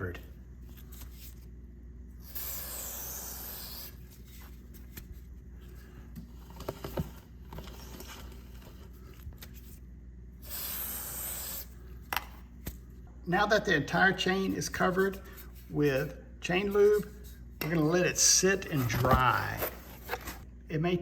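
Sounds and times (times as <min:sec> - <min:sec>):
aerosol spray hissing: 0:02.3 - 0:03.9, 0:10.4 - 0:11.7.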